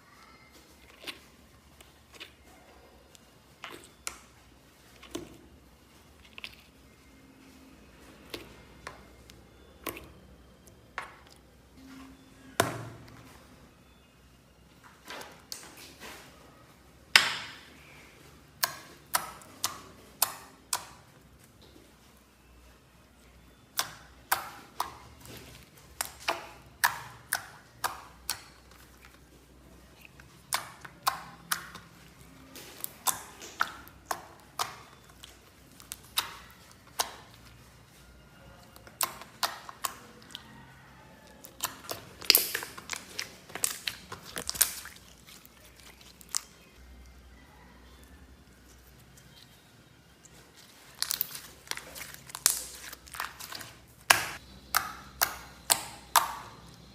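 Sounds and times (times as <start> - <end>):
slime clicking and popping: 25.9 - 28.8, 30.2 - 32.0, 32.8 - 37.6, 38.7 - 40.4, 41.2 - 46.7, 50.9 - 56.9.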